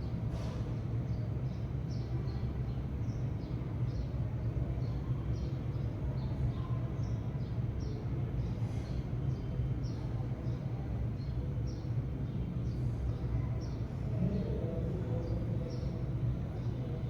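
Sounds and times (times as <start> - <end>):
sparrows chirping: 11.2 - 17.0.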